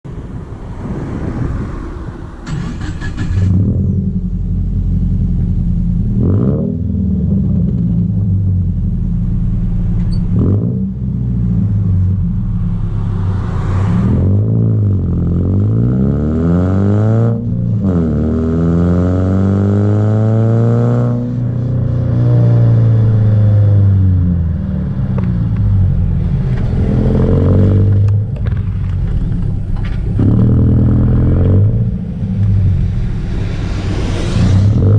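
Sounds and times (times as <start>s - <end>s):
car engine accelerating through gears: 2.4s - 8.8s, 9.9s - 34.9s.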